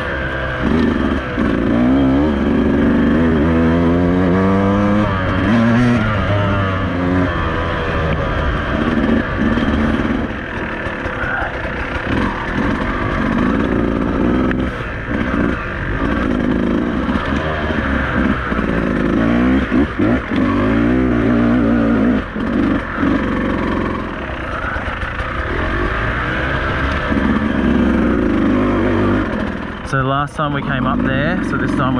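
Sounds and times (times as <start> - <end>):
motorcycle engine revving: 0.0 - 31.9
motorcycle knocking over rough ground: 8.0 - 20.5.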